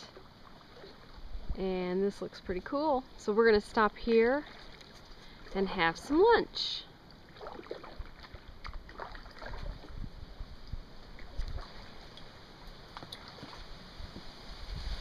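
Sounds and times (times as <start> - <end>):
paddle splashes and drips: 0.0 - 1.5, 4.2 - 6.1, 7.0 - 15.0.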